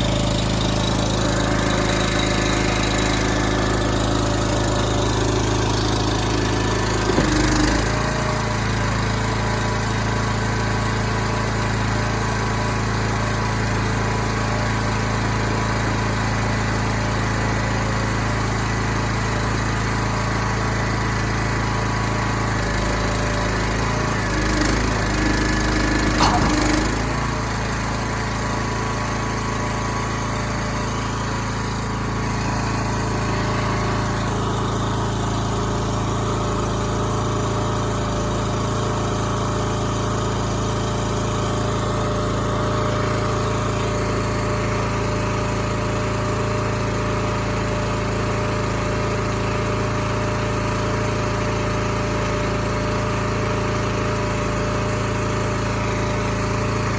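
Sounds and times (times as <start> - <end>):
truck engine running: 0.0 - 9.5, 22.3 - 38.2.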